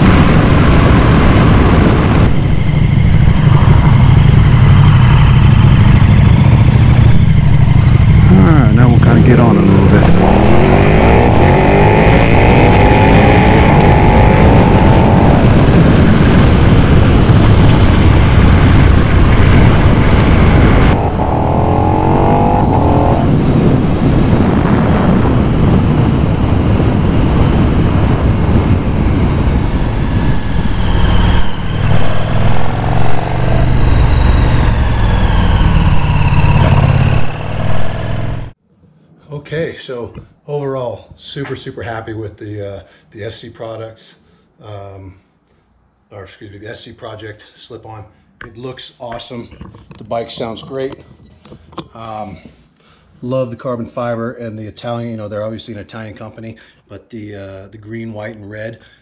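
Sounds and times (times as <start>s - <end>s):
motorcycle engine accelerating: 0.0s - 38.6s.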